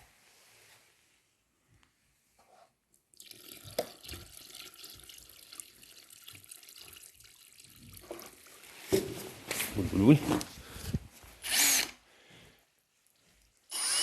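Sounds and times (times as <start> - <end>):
water pouring into container: 3.1 - 8.8.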